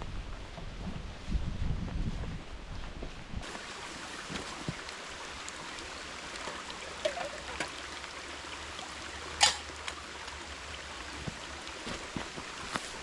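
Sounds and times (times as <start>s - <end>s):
stream water running: 3.4s - 13.0s.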